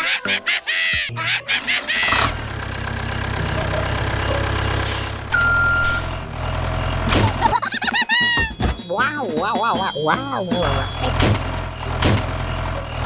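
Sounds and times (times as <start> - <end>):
vehicle engine running: 2.0 - 7.9, 10.5 - 13.0
high-pitched beep: 5.4 - 6.1.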